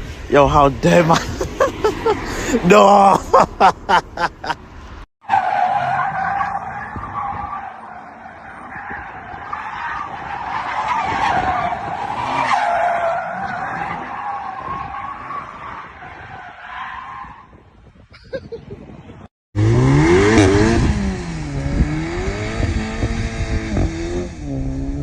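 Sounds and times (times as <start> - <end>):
car tyres squealing: 1.1 - 17.6.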